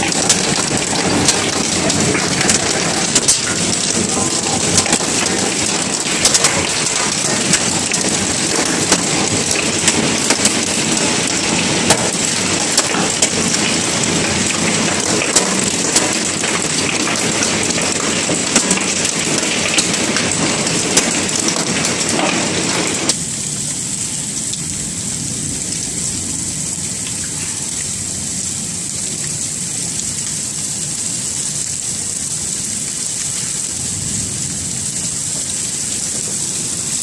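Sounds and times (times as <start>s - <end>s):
hailstones striking: 0.0s - 23.6s, 31.5s - 37.0s
rain falling: 0.0s - 37.0s.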